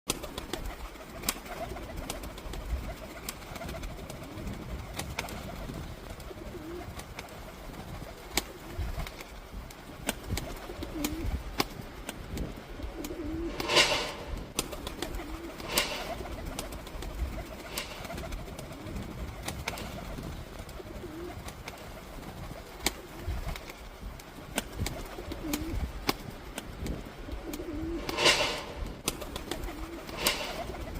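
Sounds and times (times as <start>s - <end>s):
pigeons cooing: 1.4s - 7.1s, 10.6s - 11.4s, 12.8s - 21.6s, 25.0s - 25.8s, 27.2s - 30.9s.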